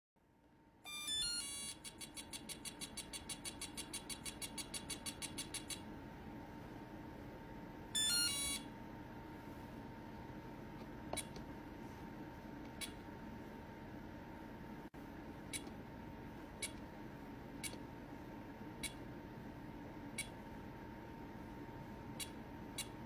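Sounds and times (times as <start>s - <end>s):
rapid electronic beeping: 0.9s - 5.8s
stepped electronic tones: 0.9s - 5.8s, 8.0s - 8.7s.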